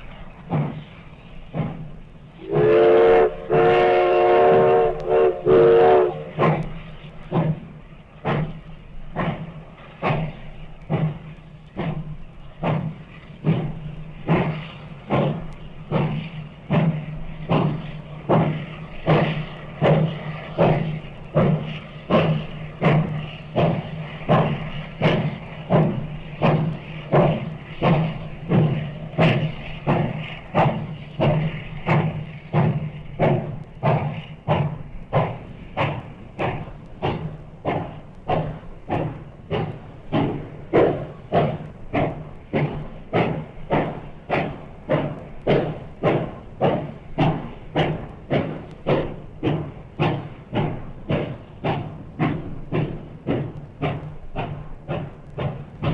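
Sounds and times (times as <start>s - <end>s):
locomotive exhaust chuffs: 0.0s - 55.9s
steam locomotive whistle: 2.4s - 6.8s.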